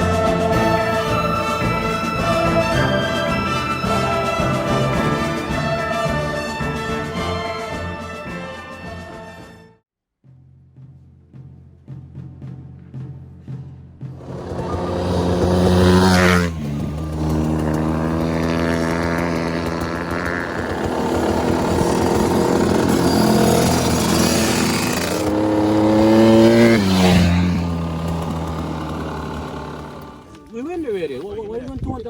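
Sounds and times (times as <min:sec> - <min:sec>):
dirt bike engine revving: 0:00.0 - 0:07.0, 0:14.1 - 0:30.6.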